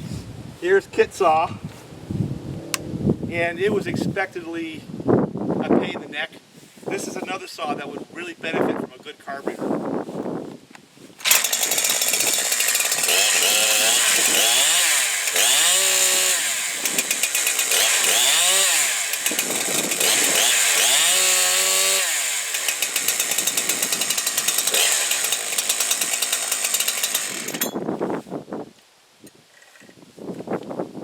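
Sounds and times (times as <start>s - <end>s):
chainsaw revving: 11.2s - 27.8s.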